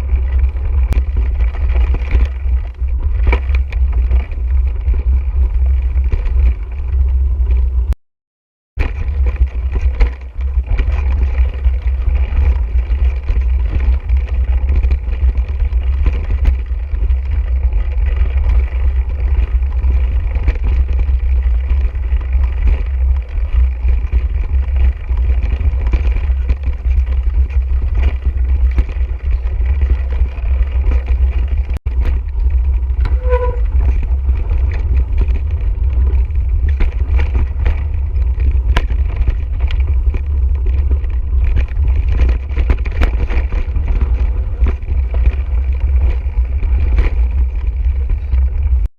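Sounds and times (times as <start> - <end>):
bike clattering over dirt trail: 0.0 - 7.9, 8.8 - 48.9
wind buffeting microphone: 9.0 - 48.9
brief tone: 33.0 - 33.9.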